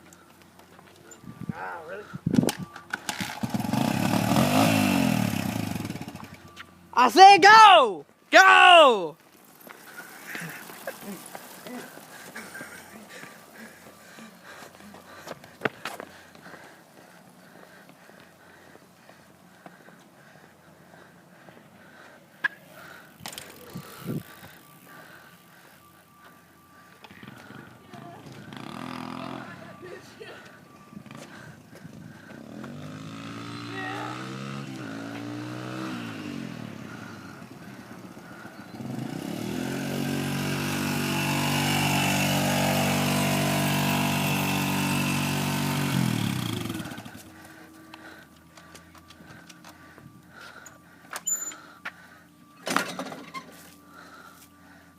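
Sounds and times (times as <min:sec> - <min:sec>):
bicycle rolling: 0:00.0 - 0:04.4, 0:09.2 - 0:34.0, 0:36.7 - 0:54.9
dirt bike engine revving: 0:02.9 - 0:06.6, 0:28.3 - 0:50.6.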